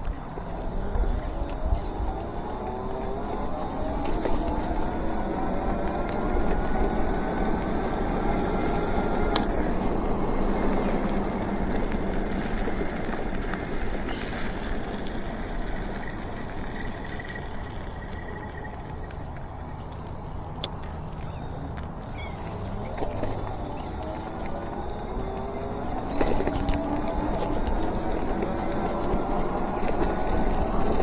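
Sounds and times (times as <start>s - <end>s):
sharp clicks: 0.0s - 9.9s
electric motor whine: 0.0s - 31.0s
wind and road rush: 0.0s - 31.0s.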